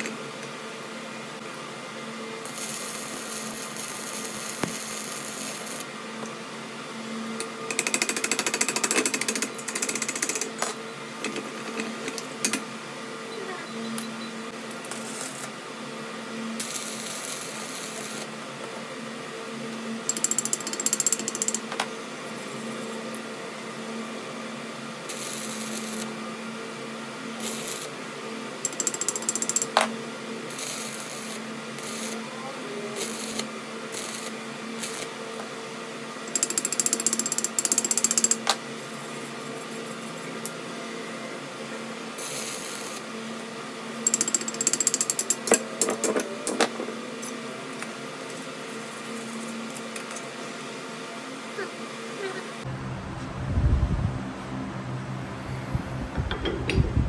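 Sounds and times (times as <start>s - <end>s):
workshop machine humming: 52.6s - 57.0s.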